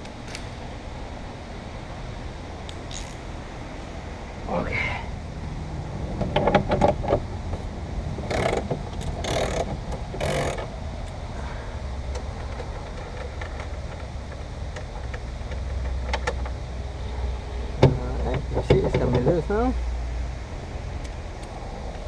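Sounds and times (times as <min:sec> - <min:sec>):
steady low hum: 0:00.0 - 0:22.0
metal clicks of socket wrench: 0:02.7 - 0:03.2
socket wrench rasping: 0:02.7 - 0:03.2, 0:08.3 - 0:10.7.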